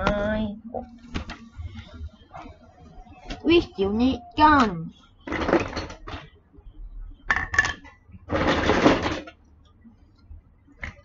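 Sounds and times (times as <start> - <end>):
plastic bricks clattering: 7.4 - 9.3.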